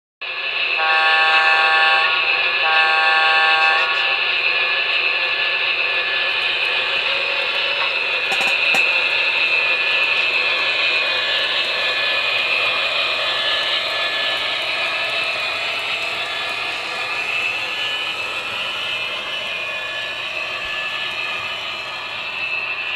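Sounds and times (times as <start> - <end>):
high turbine whine: 0.2 - 22.9
locomotive horn blasts: 0.8 - 4.0.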